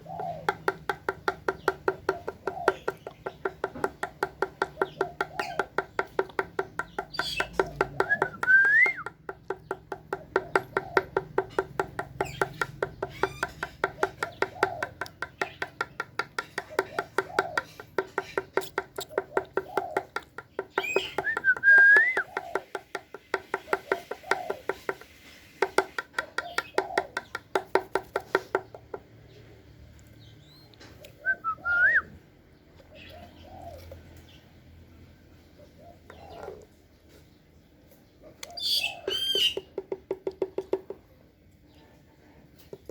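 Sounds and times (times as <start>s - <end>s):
dove pecking hard cup: 0.0s - 29.2s, 38.6s - 41.2s
rising whistled chirp: 31.2s - 32.2s.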